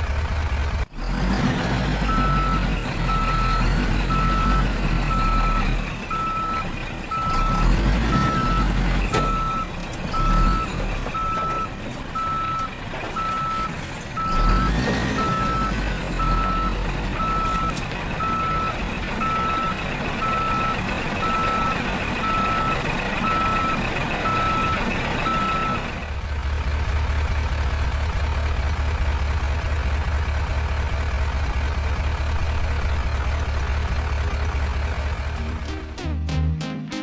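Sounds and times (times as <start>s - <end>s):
truck reversing alarm beeping: 2.0s - 25.9s.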